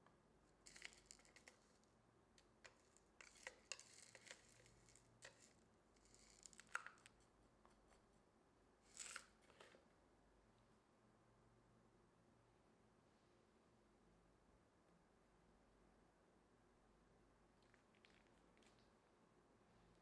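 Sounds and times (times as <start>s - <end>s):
rustling on work surface: 2.6s - 7.2s.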